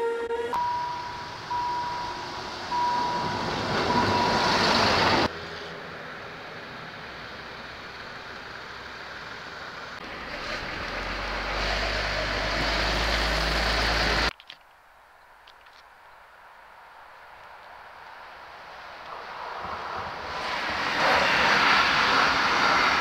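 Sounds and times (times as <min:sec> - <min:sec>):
high steady tone: 0:00.0 - 0:04.8
diesel railcar passing: 0:00.0 - 0:14.3, 0:17.7 - 0:23.0
train running noise: 0:00.0 - 0:14.3, 0:18.5 - 0:23.0
diesel locomotive engine hum: 0:00.0 - 0:14.4, 0:16.9 - 0:23.0.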